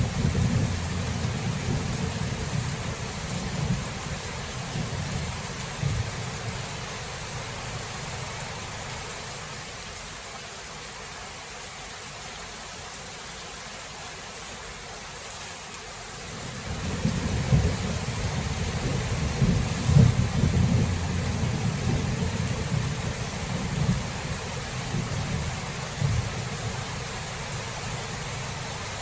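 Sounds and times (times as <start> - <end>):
thunder rumbling: 0.0 - 6.6, 16.5 - 26.9
rain hissing: 0.0 - 29.0.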